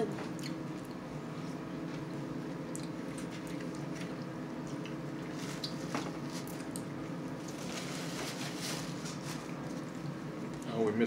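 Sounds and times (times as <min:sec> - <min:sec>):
steady low hum: 0:00.0 - 0:11.0
wet chewing sounds: 0:02.7 - 0:06.9.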